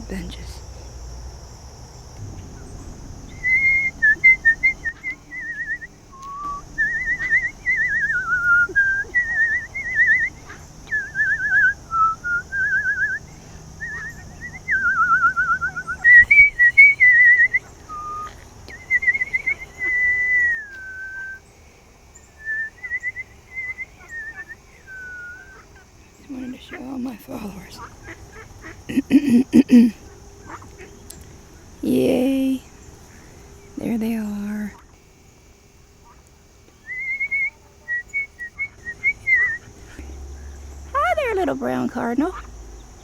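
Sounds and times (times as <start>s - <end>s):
person whistling: 3.4s - 10.3s, 10.9s - 13.2s, 13.8s - 21.4s, 36.9s - 39.7s.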